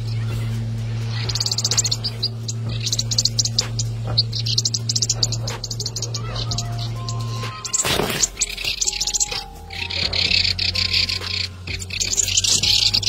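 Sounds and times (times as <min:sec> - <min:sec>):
small bird chattering calls: 0:00.0 - 0:13.0
steady low hum: 0:00.0 - 0:13.0.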